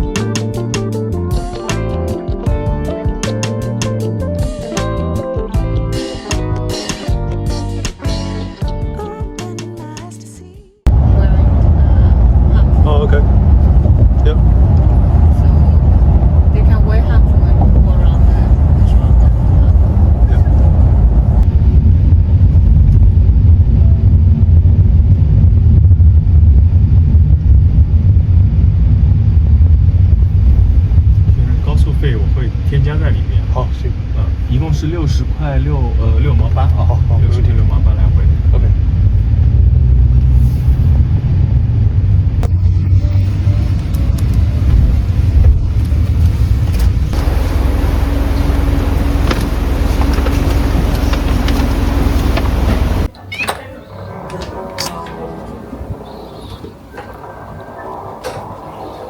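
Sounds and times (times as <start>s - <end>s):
steady hum: 10.9s - 40.1s, 41.2s - 59.0s
vehicle engine rumble: 10.9s - 53.2s.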